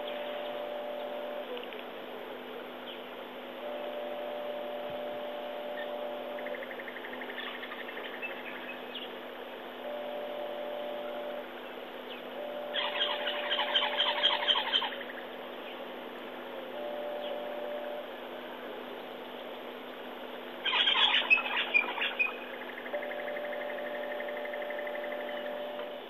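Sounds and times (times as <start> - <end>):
birds calling: 0.0 - 1.8, 2.6 - 16.1, 16.7 - 26.0
steady low hum: 0.0 - 26.0
bird rapid chattering: 12.7 - 15.3, 20.6 - 25.5.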